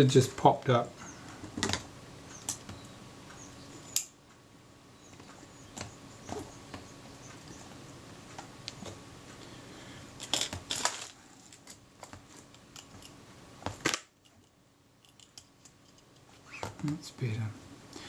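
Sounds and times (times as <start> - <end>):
small metal clicks and scrapes: 14.2 - 16.6.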